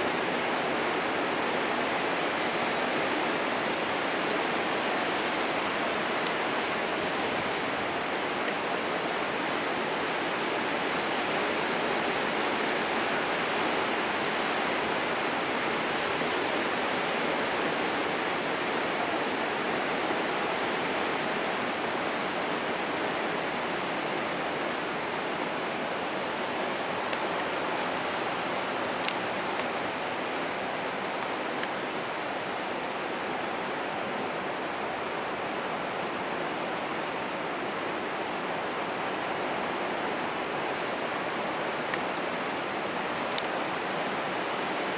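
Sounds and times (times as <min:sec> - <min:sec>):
steady rushing noise: 0:00.0 - 0:44.9.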